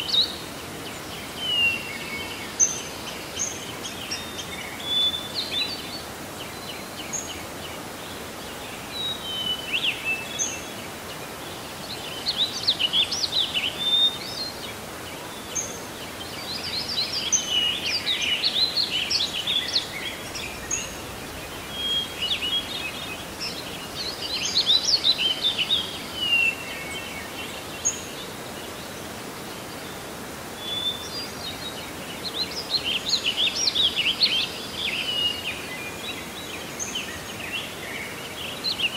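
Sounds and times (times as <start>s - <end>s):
birds chirping and trilling: 0.0s - 38.9s
steady background hiss: 0.0s - 38.9s.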